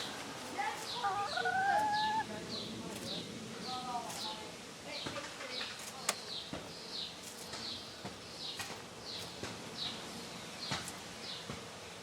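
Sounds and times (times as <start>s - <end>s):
bird peeping: 0.8s - 3.2s.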